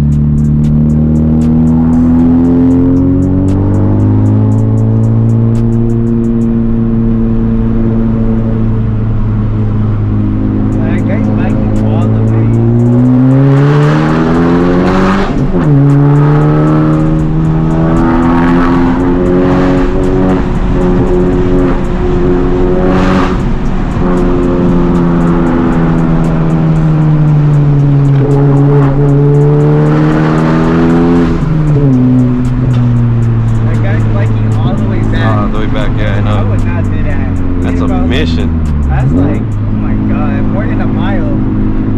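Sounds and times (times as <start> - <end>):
car engine pulling hard: 0.0 - 41.9.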